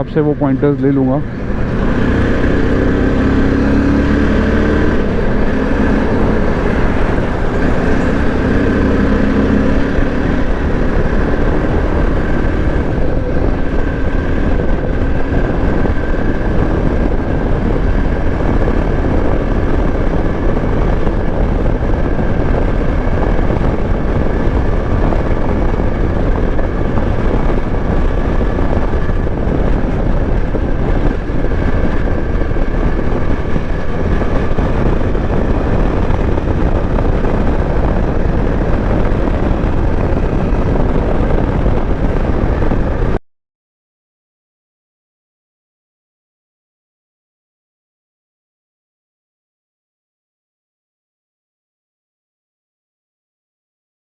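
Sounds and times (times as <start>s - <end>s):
motorcycle engine drone: 0.0s - 43.2s
wind rushing over microphone: 0.0s - 43.2s.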